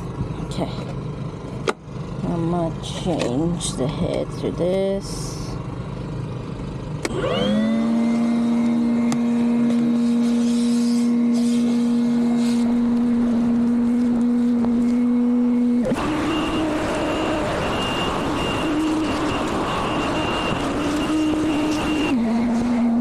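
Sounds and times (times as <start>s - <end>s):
handheld vacuum motor whine: 7.0s - 23.0s.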